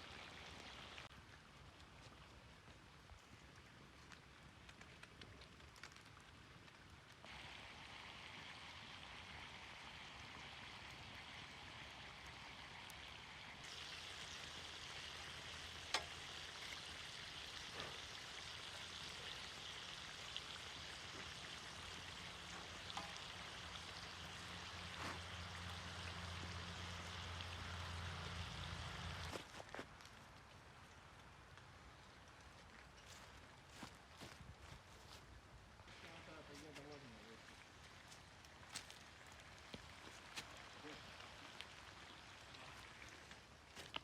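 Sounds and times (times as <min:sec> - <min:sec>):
meat sizzling in a pan: 0:07.3 - 0:28.0.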